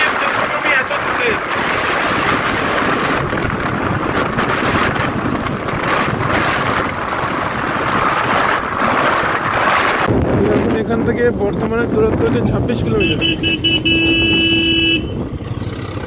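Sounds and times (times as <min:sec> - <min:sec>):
wind rushing over microphone: 0:00.0 - 0:16.0
motorcycle engine running: 0:12.7 - 0:16.0.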